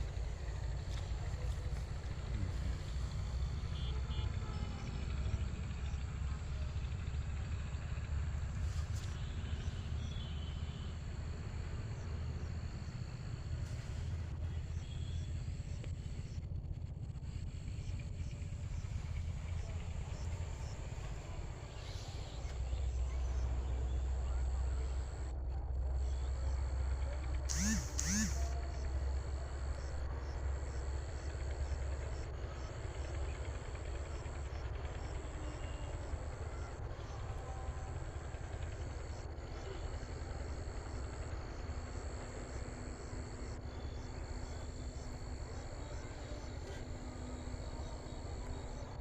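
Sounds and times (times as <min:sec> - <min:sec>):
faint rhythmic chirps: 0:14.3 - 0:49.0
insects trilling: 0:26.0 - 0:49.0.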